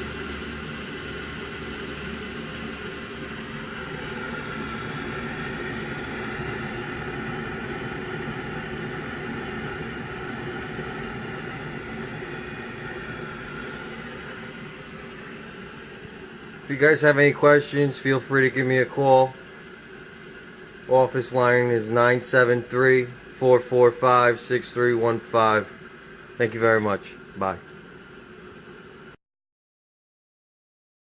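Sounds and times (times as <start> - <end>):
water heater blower and burner hum: 0.0 - 29.2.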